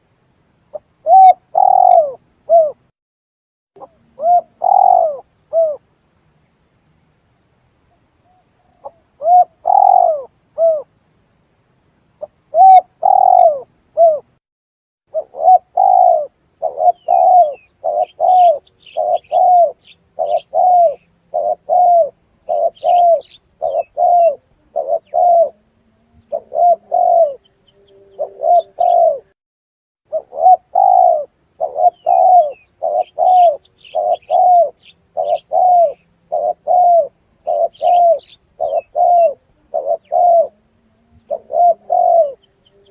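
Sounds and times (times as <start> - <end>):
dove cooing: 0.7 - 2.9, 3.8 - 5.8, 8.3 - 10.9, 12.2 - 14.4, 15.1 - 29.4, 30.1 - 42.9
high chirps of small birds: 4.2 - 5.8, 8.3 - 10.9, 15.2 - 25.6, 30.2 - 40.6.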